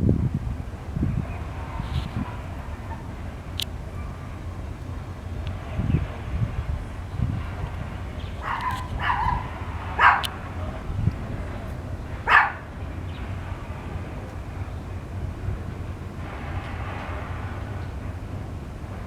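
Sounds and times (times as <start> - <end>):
passing train rumble: 0.0 - 19.0
dog barking: 8.4 - 10.4, 12.2 - 12.7.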